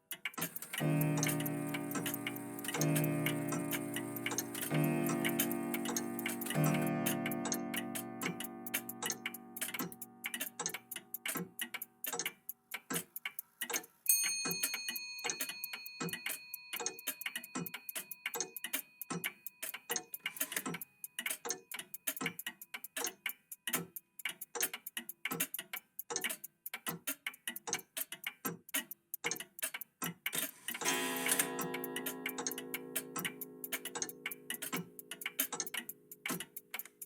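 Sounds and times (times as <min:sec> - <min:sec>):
clocks ticking: 0:00.0 - 0:37.0
clock chime ringing: 0:00.7 - 0:09.0, 0:30.8 - 0:35.2.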